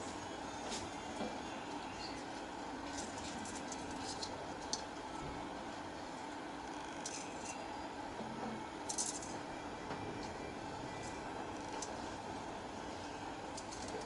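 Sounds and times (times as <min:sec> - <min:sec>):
background hum and hiss: 0:00.0 - 0:14.0
wire winding clicks and rustles: 0:02.9 - 0:04.9, 0:06.7 - 0:07.6, 0:08.9 - 0:09.4, 0:11.5 - 0:12.0, 0:13.5 - 0:14.0.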